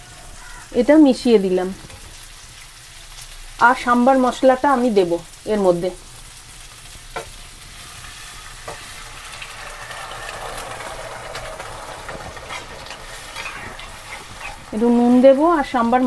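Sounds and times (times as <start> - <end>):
vegetables sizzling in oil: 0.0 - 16.0
dal poured into pan: 8.0 - 14.8.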